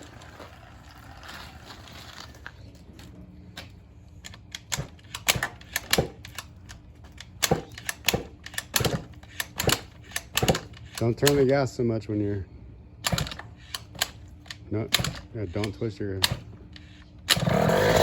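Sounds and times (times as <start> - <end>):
two-stroke engine sputtering: 7.4 - 11.5, 17.3 - 18.0.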